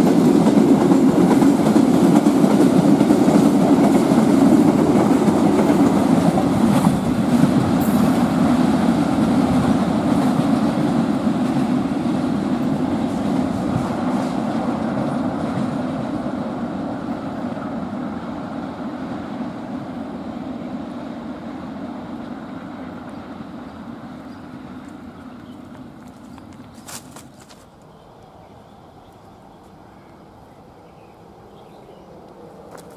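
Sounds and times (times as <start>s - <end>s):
train rumbling on rails: 0.0s - 32.9s.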